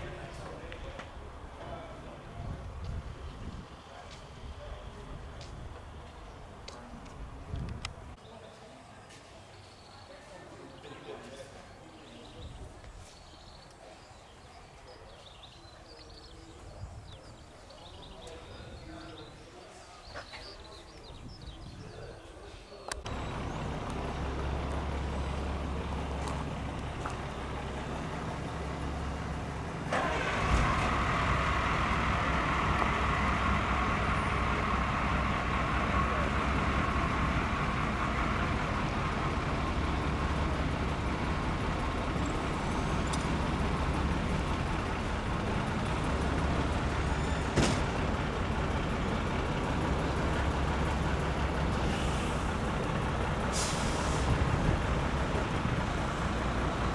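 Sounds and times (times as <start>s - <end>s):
truck diesel engine running: 23.0s - 56.9s.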